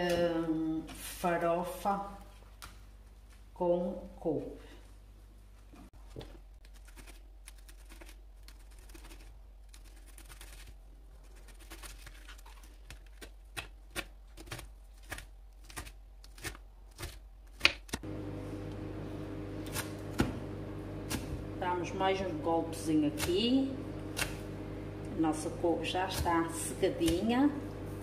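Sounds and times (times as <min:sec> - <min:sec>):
steady hum: 0:18.0 - 0:28.0
knife chopping on cutting board: 0:19.7 - 0:20.4.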